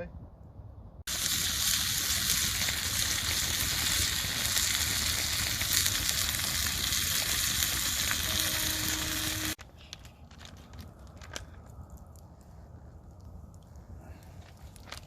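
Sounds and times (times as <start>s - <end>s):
chicken sizzling over campfire: 1.1s - 9.6s.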